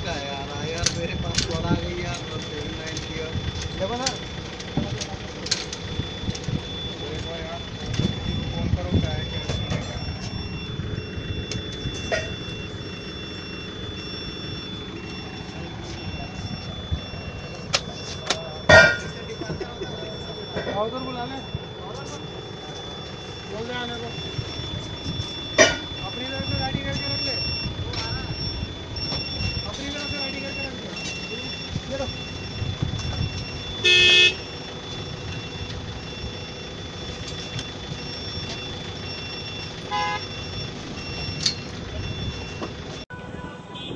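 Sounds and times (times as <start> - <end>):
electronic warning beep: 0.0 - 43.2
continuous high tone: 0.0 - 43.9
vehicle engine rumble: 0.0 - 43.9
vehicle horn honking: 25.6 - 26.7, 33.8 - 34.5, 39.9 - 40.3, 43.1 - 43.9.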